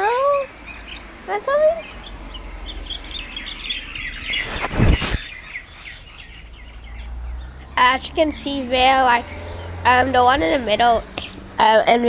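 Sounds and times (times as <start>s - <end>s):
birds chirping: 0.0s - 12.0s
loud rush: 4.1s - 5.2s.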